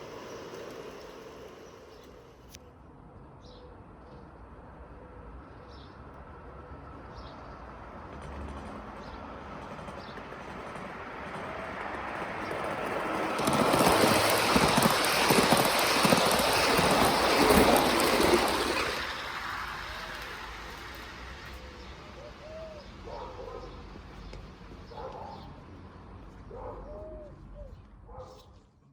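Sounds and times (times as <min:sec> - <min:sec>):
model train wheels rattling on rails: 0:00.0 - 0:02.6, 0:08.1 - 0:25.2.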